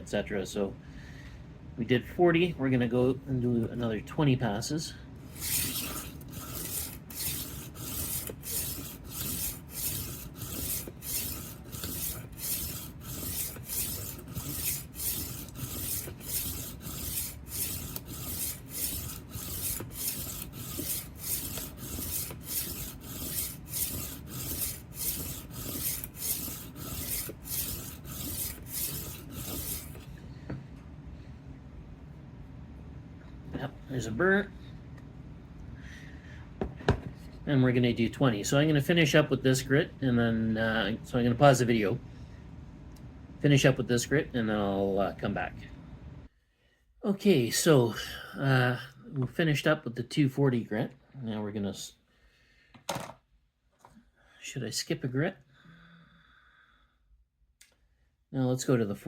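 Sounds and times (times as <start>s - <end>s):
knife sharpener rasping on blade: 5.3s - 30.1s.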